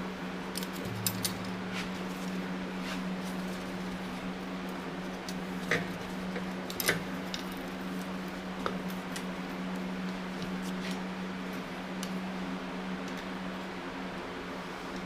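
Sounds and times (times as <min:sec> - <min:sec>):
steady low hum: 0:00.0 - 0:15.0
metallic clicks of tools: 0:00.5 - 0:01.5.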